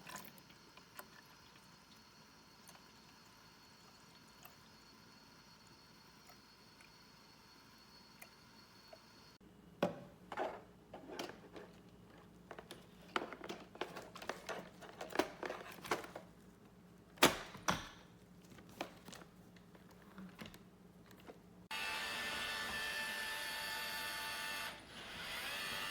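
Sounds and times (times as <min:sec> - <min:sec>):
handling clicks taps and crinkles: 0:11.1 - 0:21.5.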